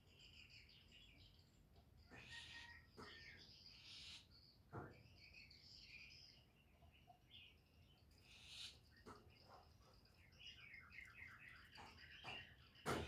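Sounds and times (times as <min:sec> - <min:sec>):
small birds chirping: 0:03.3 - 0:13.0.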